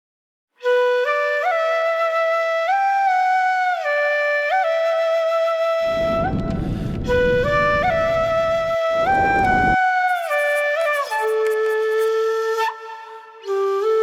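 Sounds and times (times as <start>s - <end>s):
slow flute melody: 0.6s - 14.0s
steady rushing noise: 5.9s - 9.8s.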